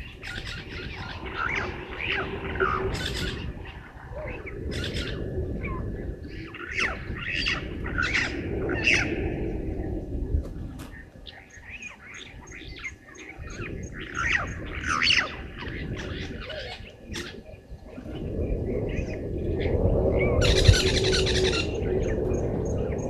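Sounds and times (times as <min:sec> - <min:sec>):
birds chirping and whistling: 0:00.0 - 0:09.6, 0:10.9 - 0:23.0
low rushing noise: 0:00.0 - 0:11.2.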